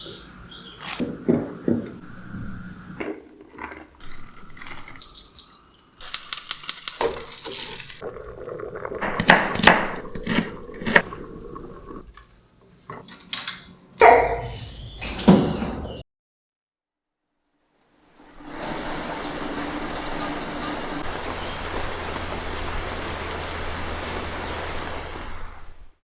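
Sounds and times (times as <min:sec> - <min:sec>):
water dripping and running: 0:00.8 - 0:13.3, 0:18.2 - 0:25.9.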